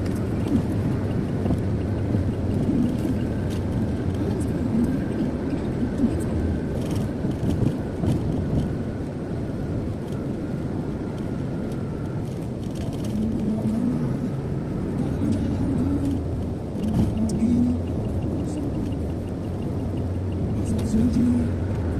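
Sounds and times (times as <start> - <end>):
car road and engine noise: 0.0 - 21.9.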